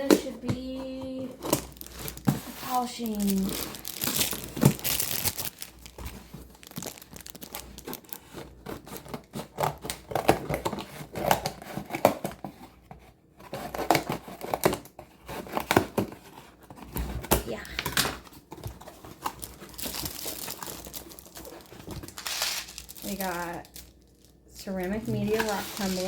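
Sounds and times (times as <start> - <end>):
packaging crinkling and tearing: 0.0 - 12.6, 13.4 - 26.0.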